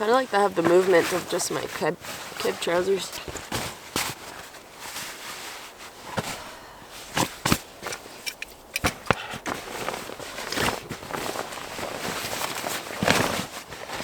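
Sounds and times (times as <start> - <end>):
clothing and bedding rustling: 0.0 - 14.0
sharp clicks and knocks: 7.5 - 9.2.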